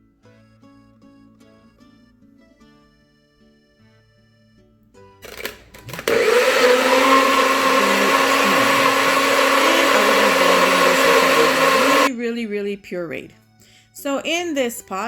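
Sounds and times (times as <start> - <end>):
blender motor running: 5.2 - 12.1.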